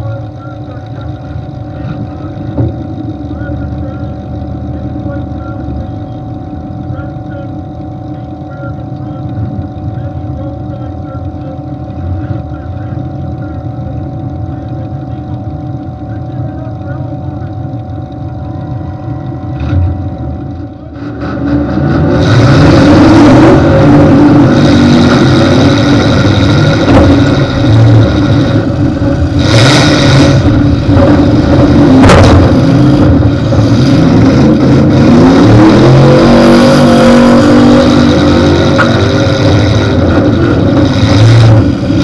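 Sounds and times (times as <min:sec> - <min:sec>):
car engine revving hard: 0:20.9 - 0:42.0.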